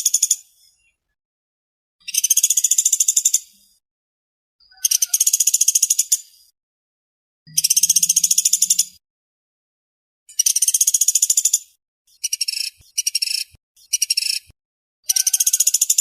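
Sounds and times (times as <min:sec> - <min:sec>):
woodpecker rattling trill: 0:04.7 - 0:06.2, 0:07.5 - 0:09.0, 0:15.1 - 0:16.0.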